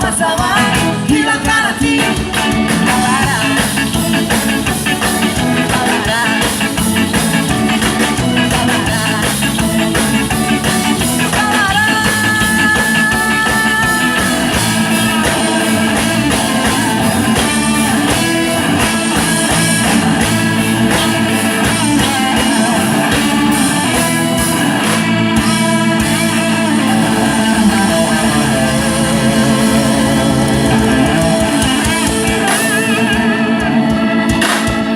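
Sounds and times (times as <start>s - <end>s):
person singing: 0.0s - 4.1s, 5.0s - 34.9s
drums: 0.0s - 34.9s
electric guitar: 0.0s - 34.9s
ska band playing live: 0.0s - 34.9s.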